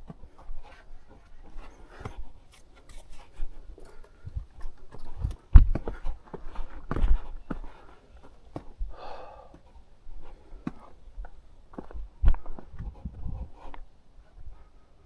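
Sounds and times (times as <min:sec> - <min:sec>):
rustling and scraping: 0:00.0 - 0:08.8
footsteps: 0:00.0 - 0:14.6.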